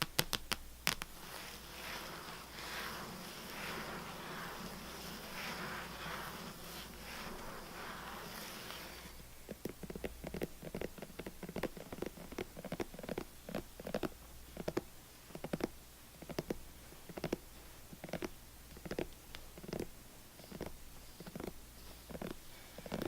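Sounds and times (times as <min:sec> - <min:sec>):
scratching: 0:00.0 - 0:14.1.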